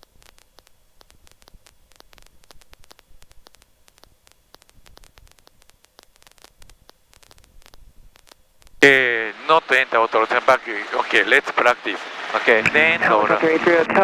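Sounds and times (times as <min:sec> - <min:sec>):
radio static crackling clicks: 0:00.0 - 0:14.0
low hum: 0:10.9 - 0:14.0.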